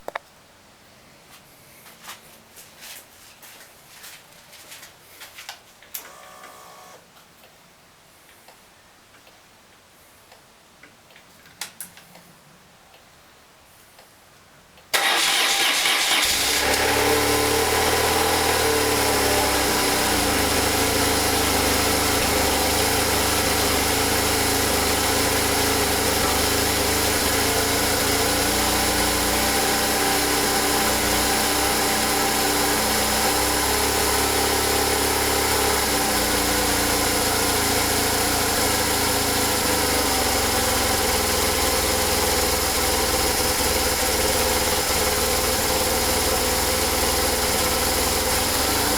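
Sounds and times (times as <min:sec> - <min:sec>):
motorcycle engine cranking and idling: 0:14.9 - 0:48.9.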